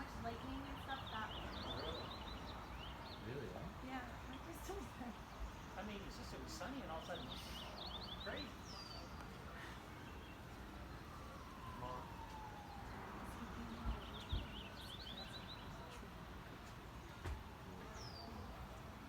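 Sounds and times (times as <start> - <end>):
distant siren wailing: 0.0 - 3.0, 6.8 - 19.0
birds chirping: 0.0 - 18.9.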